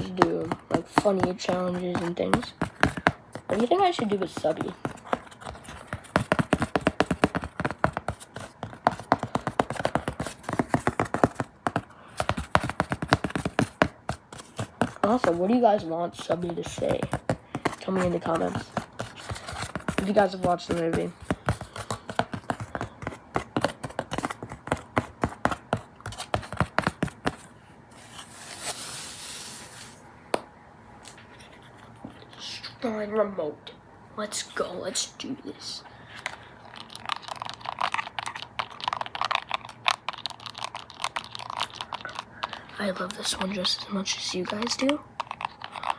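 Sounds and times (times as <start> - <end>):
rapid tapping on hard object: 0.0 - 27.5, 37.0 - 45.9
soft scraping hiss: 27.9 - 30.1.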